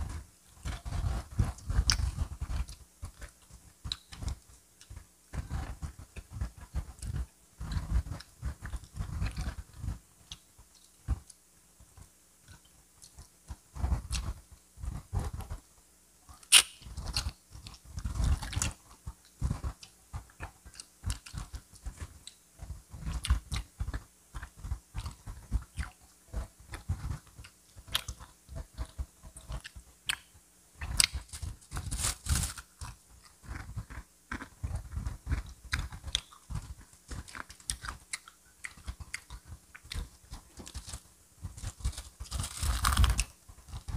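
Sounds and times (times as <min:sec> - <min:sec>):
crunches of fried coating: 0:16.5 - 0:43.9
wet chewing: 0:23.0 - 0:43.9.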